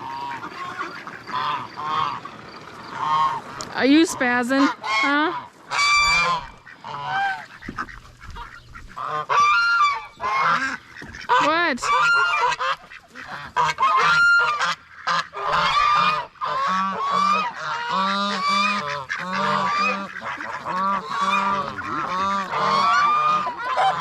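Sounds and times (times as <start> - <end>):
geese honking: 0.0 - 24.0.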